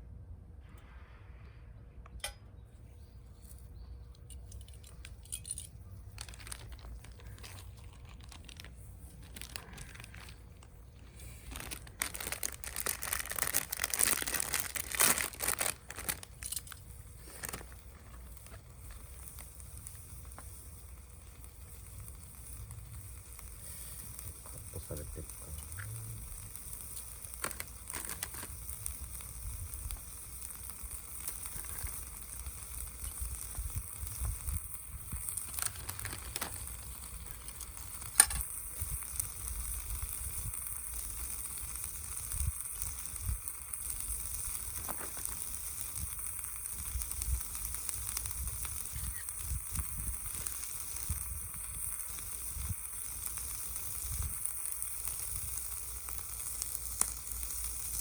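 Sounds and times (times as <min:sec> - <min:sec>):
small crackles: 0:03.2 - 0:58.0
food sizzling in a pan: 0:15.6 - 0:58.0.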